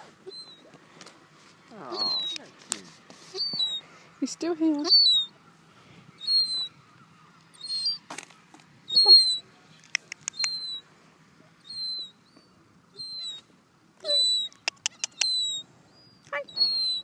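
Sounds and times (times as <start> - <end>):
gull peeping: 6.2 - 6.8, 7.6 - 8.0, 8.9 - 9.4, 11.7 - 12.1, 13.0 - 15.6, 16.4 - 17.0
sharp clicks: 9.8 - 10.7, 14.5 - 15.4.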